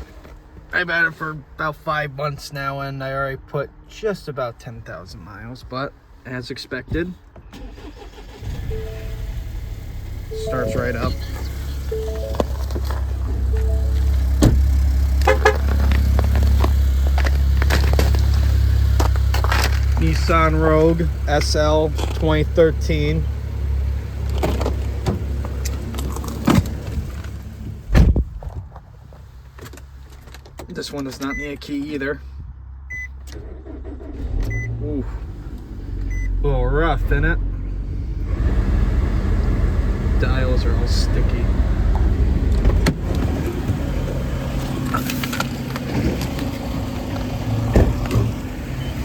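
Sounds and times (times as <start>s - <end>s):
car engine idling rough: 8.3s - 27.7s
low steady rumble: 8.4s - 19.1s
car door thud: 14.4s - 14.8s, 27.9s - 28.4s, 47.7s - 48.3s.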